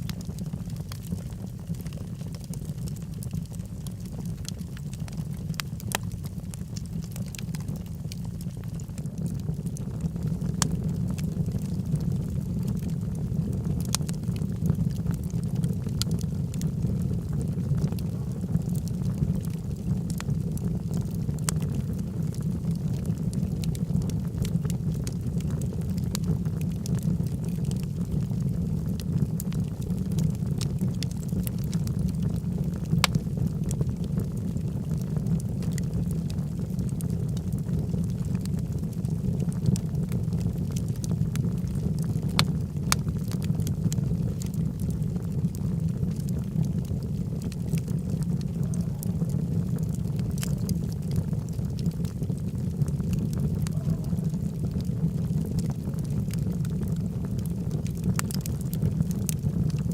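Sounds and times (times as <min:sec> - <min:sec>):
logs burning in fireplace: 0:00.0 - 0:59.9.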